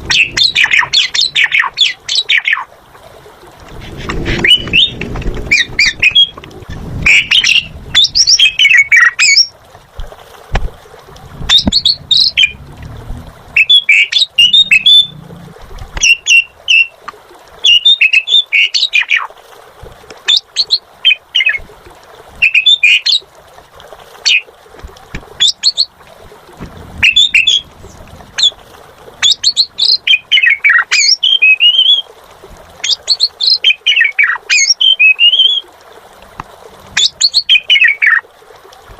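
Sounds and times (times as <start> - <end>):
starling whistling and chattering: 0.0 - 2.6, 4.2 - 6.4, 7.0 - 9.5, 13.6 - 15.1, 27.0 - 27.7.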